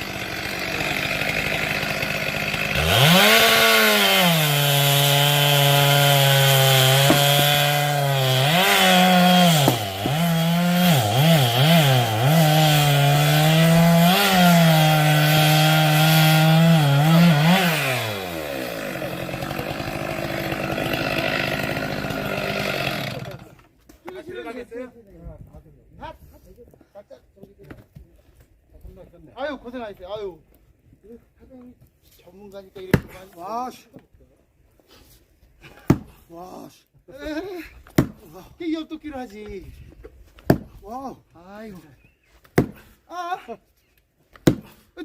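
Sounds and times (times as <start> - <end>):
chainsaw idling: 0.0 - 23.6
chainsaw cutting log: 0.0 - 23.8, 34.9 - 36.2, 37.9 - 38.4, 40.4 - 40.8, 42.5 - 43.0, 44.3 - 45.0.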